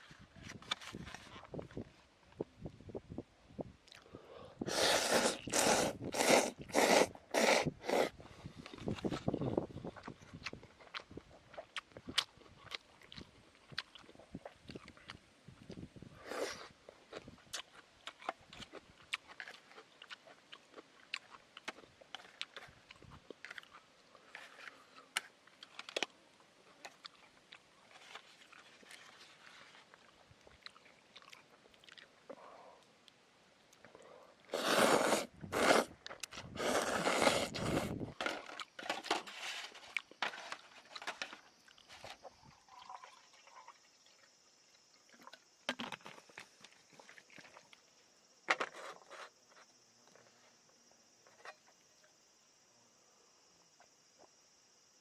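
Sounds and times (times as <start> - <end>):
rustling crunch: 0.0 - 2.0, 34.5 - 42.2
small crunching and clicking: 16.9 - 26.2, 34.6 - 42.3.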